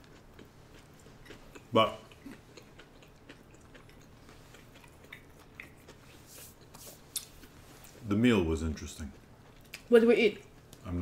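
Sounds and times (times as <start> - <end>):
soft chewing with mouth clicks: 0.0 - 11.0
hands rubbing together: 6.1 - 7.9.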